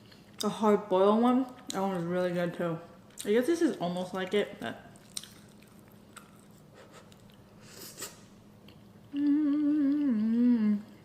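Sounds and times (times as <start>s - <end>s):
woman humming: 9.1s - 11.0s.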